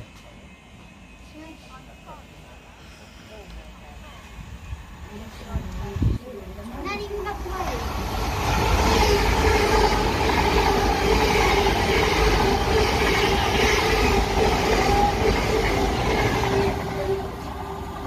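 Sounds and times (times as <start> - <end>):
wheels rumbling on rails: 5.1 - 18.0.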